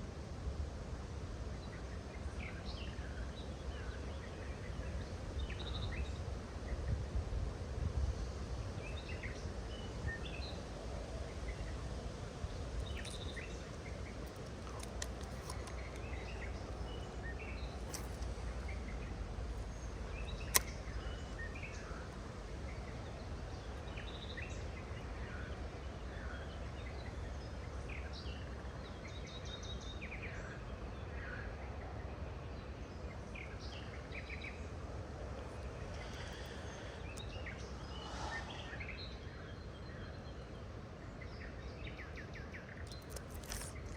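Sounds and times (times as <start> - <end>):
birds chirping: 8.9 - 29.2, 35.3 - 43.9
sharp click: 20.3 - 21.2, 42.9 - 43.9.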